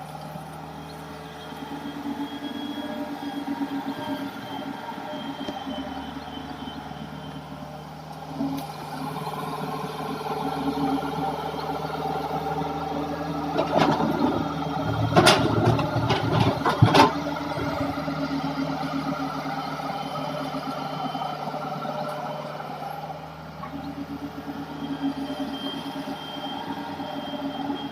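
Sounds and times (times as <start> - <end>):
excavator diesel engine running: 0.0 - 27.9
knocks and clanks: 13.6 - 17.8.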